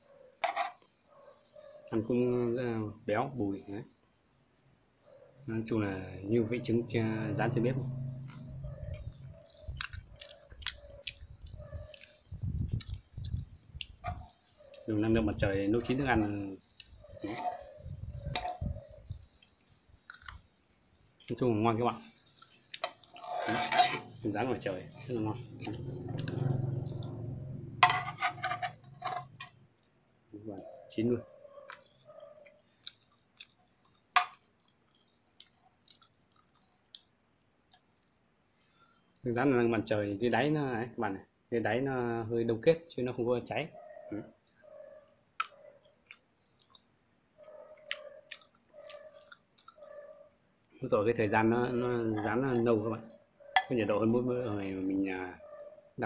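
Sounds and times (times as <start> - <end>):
person chewing: 8.2 - 14.9, 19.4 - 20.5, 32.5 - 38.1, 47.7 - 50.0
wet mouth clicks: 45.4 - 46.9.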